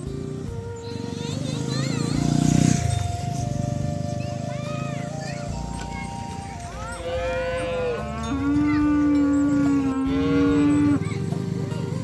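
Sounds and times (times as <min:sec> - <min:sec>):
cow mooing: 0:07.0 - 0:11.0.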